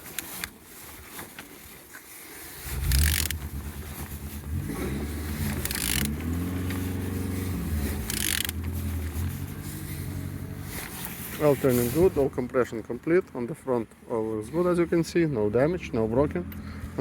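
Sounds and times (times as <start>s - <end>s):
engine cranking whir: 2.6s - 11.2s.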